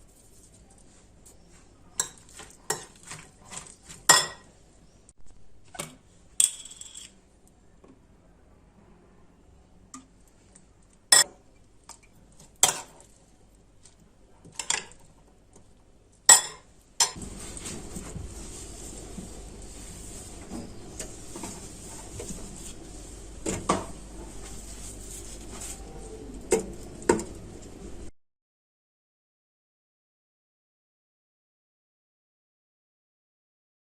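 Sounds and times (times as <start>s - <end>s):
dishes and cutlery clinking: 1.9s - 4.5s, 16.3s - 17.8s.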